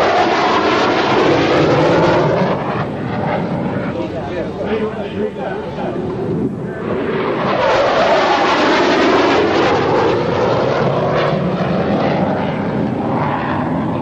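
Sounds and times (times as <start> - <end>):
plane passing overhead: 0.0 - 14.0.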